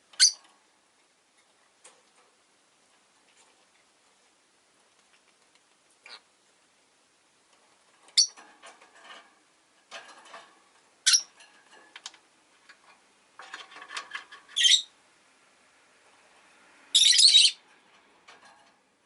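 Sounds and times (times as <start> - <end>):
high-pitched bird chirps: 0.2 - 0.4, 14.6 - 14.9, 17.0 - 17.6.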